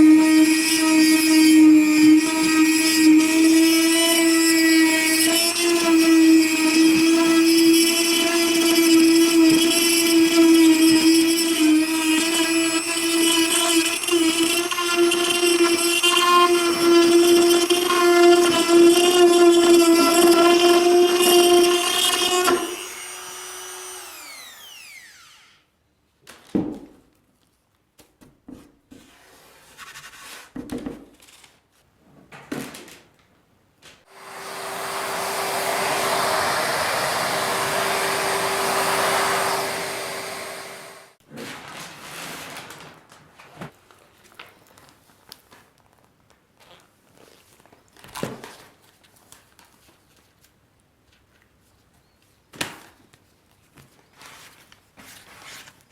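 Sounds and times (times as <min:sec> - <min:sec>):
power tool running with rushing hum: 0:00.6 - 0:25.5, 0:34.1 - 0:41.2
power tool motor winding down: 0:02.2 - 0:16.6, 0:17.2 - 0:25.6, 0:34.1 - 0:41.2.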